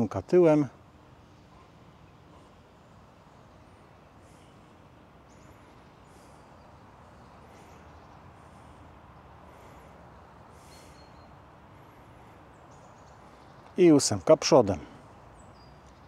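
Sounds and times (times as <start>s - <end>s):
bird chirps: 5.2s - 9.8s, 10.5s - 11.4s, 12.4s - 13.9s, 15.1s - 16.0s.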